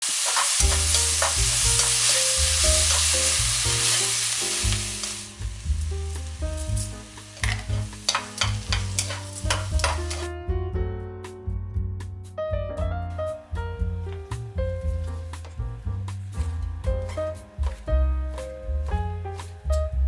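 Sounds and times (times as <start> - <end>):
food sizzling in hot oil: 0.0 - 10.3
soft background music: 0.6 - 20.0.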